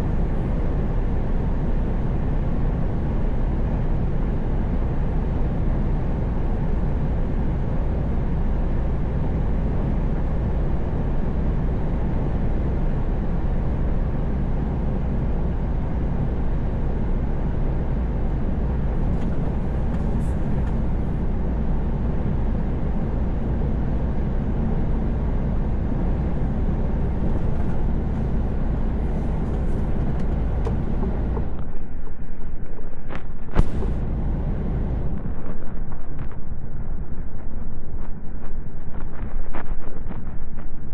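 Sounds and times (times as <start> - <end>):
truck engine drone: 0.0 - 32.4, 33.4 - 37.1
road noise: 0.0 - 40.7.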